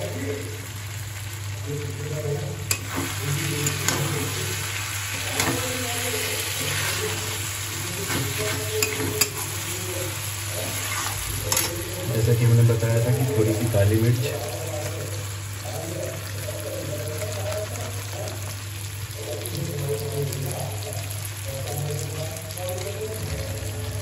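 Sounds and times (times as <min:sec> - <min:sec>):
chicken sizzling in oil: 0:00.0 - 0:24.0
spatula scraping a pan: 0:02.7 - 0:09.7, 0:10.5 - 0:11.9.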